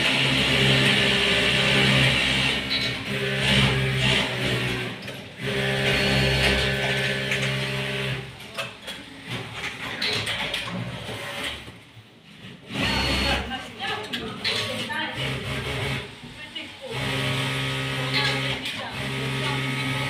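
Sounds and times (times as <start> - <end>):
sewing machine running: 0.0 - 8.5, 12.6 - 16.2, 16.8 - 20.0.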